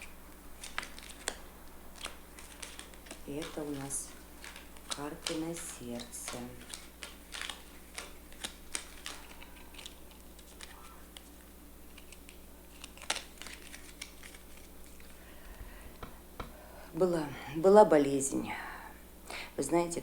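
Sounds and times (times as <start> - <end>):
cards laid on a table: 0.6 - 16.7.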